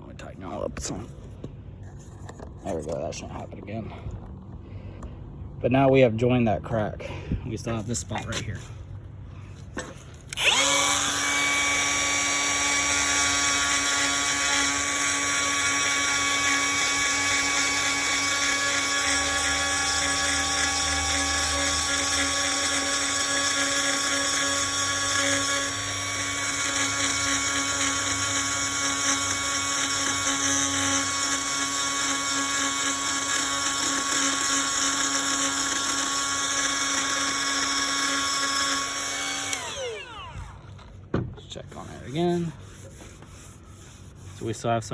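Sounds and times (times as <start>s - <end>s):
rotary tool grinding whine: 10.1s - 41.0s.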